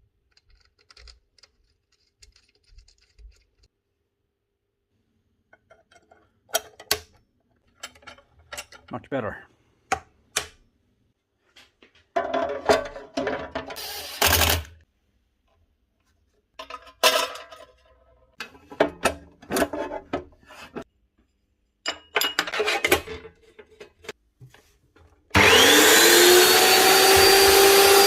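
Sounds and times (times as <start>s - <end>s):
cutoff saw motor whine: 25.4s - 28.0s.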